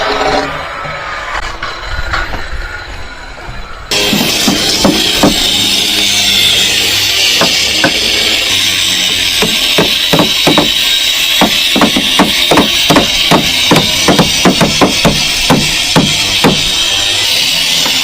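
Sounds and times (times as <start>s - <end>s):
background music: 3.9s - 10.7s
hammer striking nails into wood: 4.1s - 5.5s, 7.4s - 8.0s, 9.4s - 10.8s, 11.4s - 16.6s.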